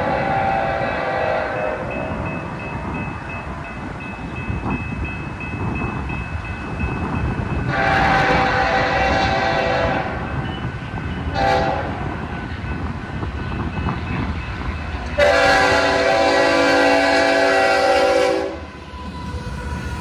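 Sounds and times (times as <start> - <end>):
locomotive air horn blasts: 0.0 - 1.8, 7.7 - 10.2, 11.3 - 12.0, 15.2 - 18.7
passing train rumble: 0.0 - 20.0.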